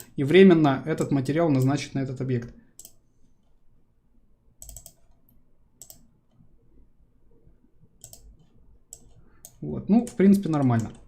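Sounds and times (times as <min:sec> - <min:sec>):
computer mouse clicks: 0:02.8 - 0:03.6, 0:04.6 - 0:06.4, 0:08.0 - 0:11.0.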